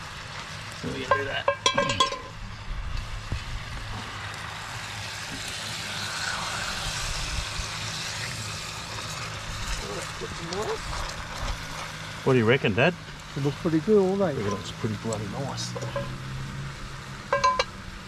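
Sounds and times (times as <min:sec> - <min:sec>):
meat sizzling in a pot: 0:00.0 - 0:18.0
metal tongs clinking on pot: 0:01.0 - 0:02.4, 0:15.8 - 0:16.2, 0:17.3 - 0:17.7
low engine hum: 0:02.2 - 0:18.0.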